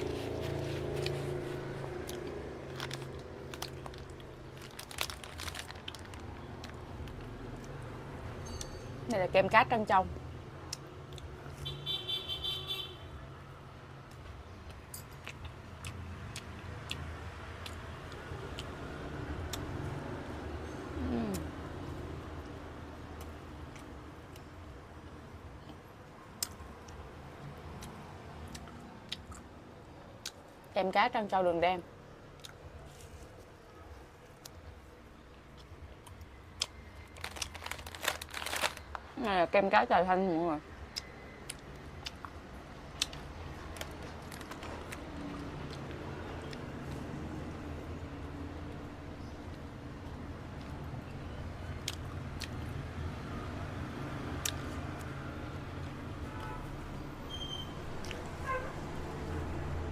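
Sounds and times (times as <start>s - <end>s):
crisp crunches: 0.0s - 7.3s, 36.6s - 39.0s, 43.0s - 45.0s
person chewing ice cream: 0.0s - 7.8s, 15.2s - 19.8s, 32.3s - 33.2s, 35.5s - 39.0s, 40.9s - 47.0s
road traffic hum: 0.0s - 59.9s.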